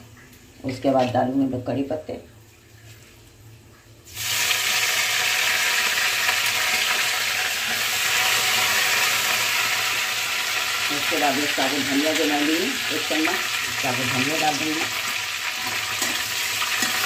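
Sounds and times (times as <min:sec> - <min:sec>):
oil sizzling loudly: 0:04.0 - 0:17.0.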